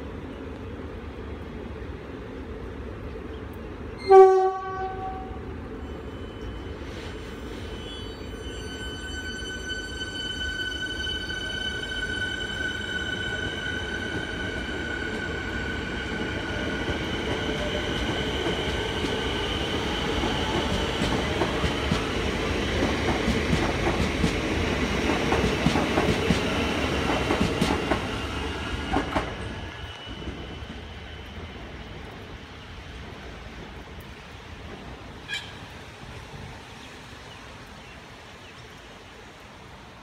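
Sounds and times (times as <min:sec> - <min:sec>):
electric train whine: 0:04.0 - 0:37.4
train wheels clattering over rail joints: 0:22.8 - 0:28.1.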